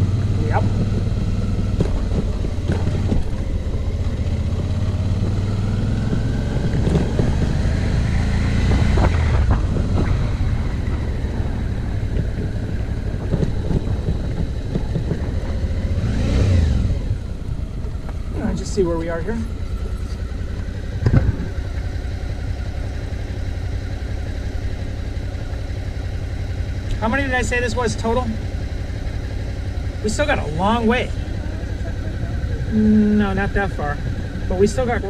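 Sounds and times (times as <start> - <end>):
motorcycle engine revving: 0.0 - 35.0
knocks from bumps: 21.0 - 21.5.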